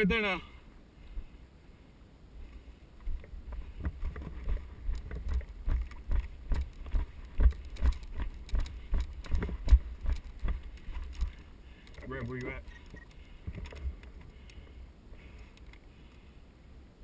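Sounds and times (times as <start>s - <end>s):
heavy thumping footsteps: 3.0s - 12.2s
gear jostling: 3.0s - 15.9s.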